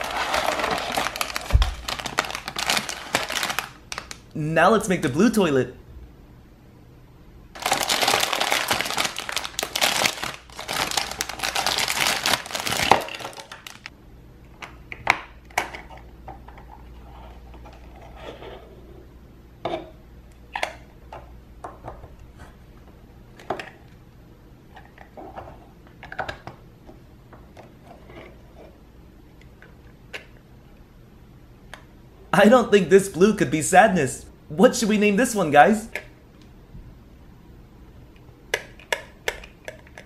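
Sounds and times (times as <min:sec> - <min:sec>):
plastic bag crinkling: 0:00.0 - 0:04.3, 0:07.6 - 0:13.9.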